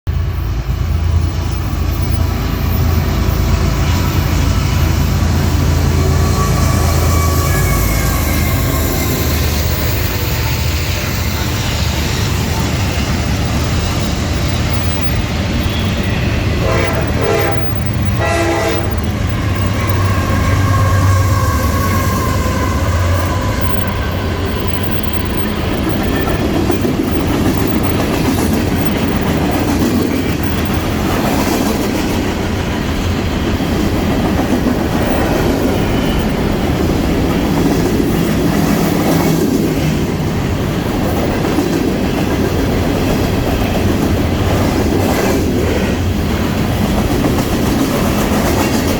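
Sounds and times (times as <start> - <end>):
freight train rumbling past: 0.1 - 48.9
train horn blasts: 4.0 - 12.8, 16.5 - 25.4
wheels clacking over rail joints: 22.6 - 48.9.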